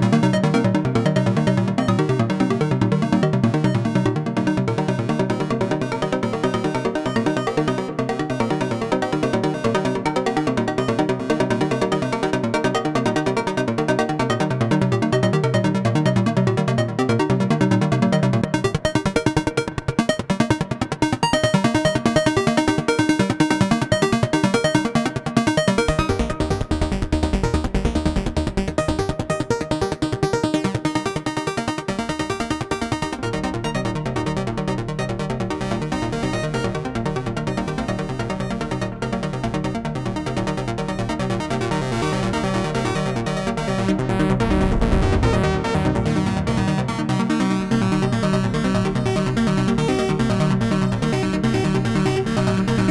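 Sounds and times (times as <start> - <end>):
synthesizer echo: 44.0 - 48.2.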